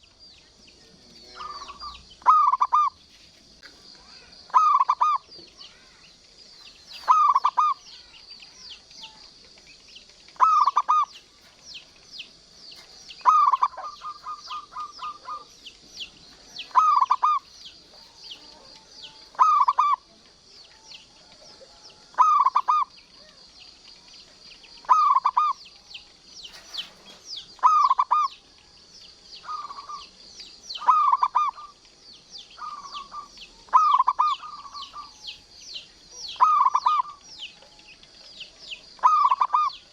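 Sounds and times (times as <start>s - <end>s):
high chirping: 0.0s - 39.9s
dove cooing: 0.8s - 23.5s, 24.7s - 28.6s, 29.4s - 39.9s.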